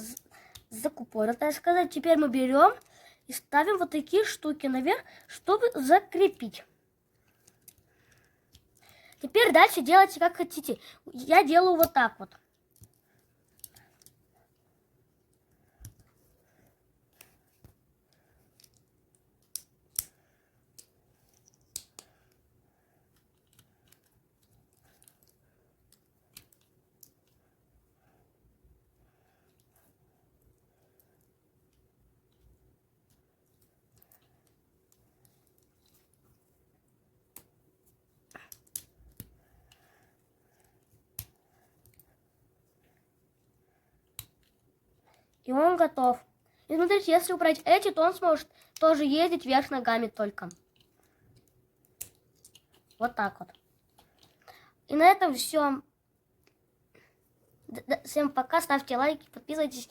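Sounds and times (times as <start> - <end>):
plastic pieces clicking together: 7.2 - 9.2, 11.8 - 14.2, 18.1 - 22.4, 23.2 - 27.4, 38.3 - 39.8, 50.5 - 54.4
plastic bricks clicking together: 18.6 - 20.1.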